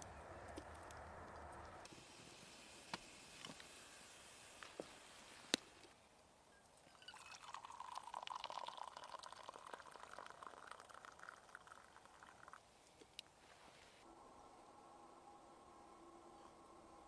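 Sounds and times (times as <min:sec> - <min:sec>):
liquid pouring into container: 0:06.9 - 0:12.6.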